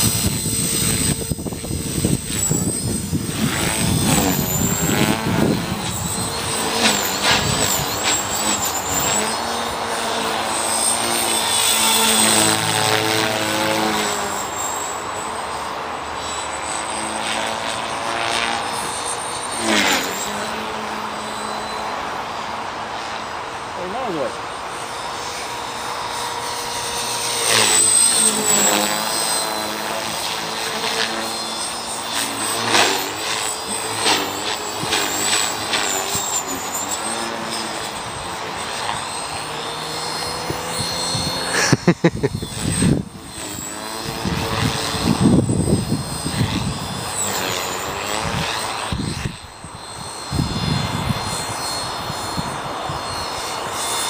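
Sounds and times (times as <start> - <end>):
wind buffeting microphone: 0.0 - 9.2, 44.0 - 47.4, 48.2 - 53.3
rc helicopter rotor whine: 0.0 - 54.0.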